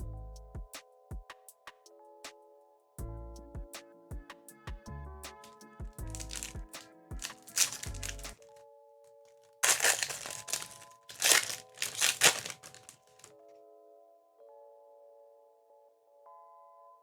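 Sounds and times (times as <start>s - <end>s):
soft background music: 0.0s - 17.0s
foil wrappers crinkling and tearing: 5.4s - 6.6s, 7.2s - 8.4s, 9.6s - 13.3s.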